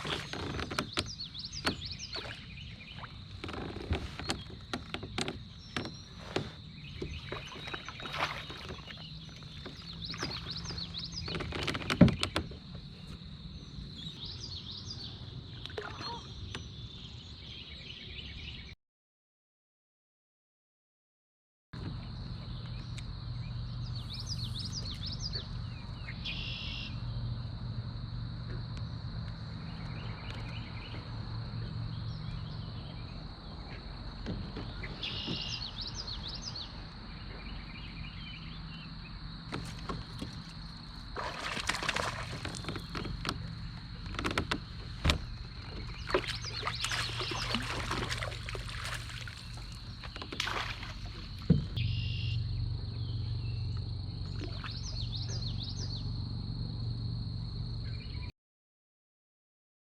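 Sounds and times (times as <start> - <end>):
knocks and rustling on kayak: 0.0 - 14.2, 32.6 - 37.7, 39.4 - 52.1.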